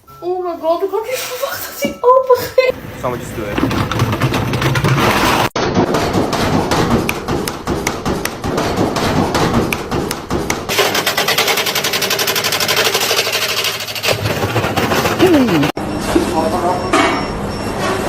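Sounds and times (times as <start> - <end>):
washing machine banging: 1.8 - 15.8.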